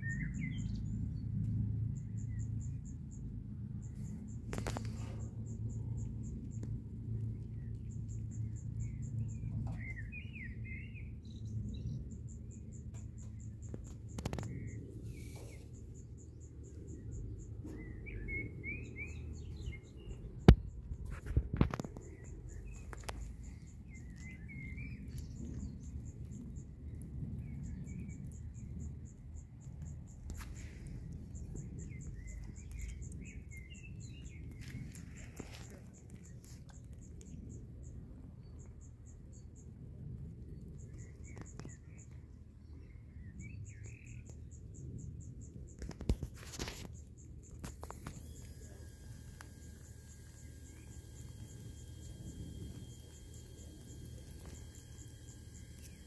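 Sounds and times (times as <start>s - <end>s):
small birds twittering: 2.0s - 39.8s, 40.5s - 56.0s
pulsing insect trill: 47.6s - 56.0s.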